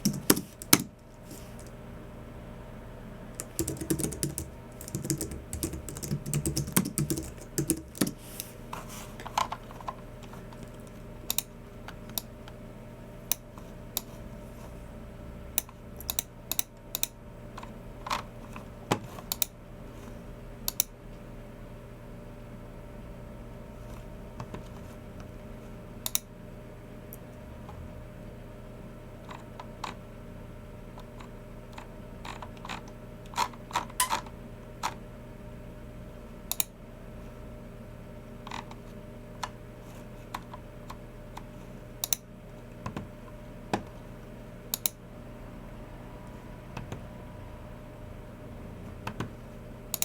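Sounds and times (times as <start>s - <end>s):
keyboard keys clicking: 0.0s - 1.0s, 3.4s - 8.2s
steady low hum: 0.0s - 50.0s.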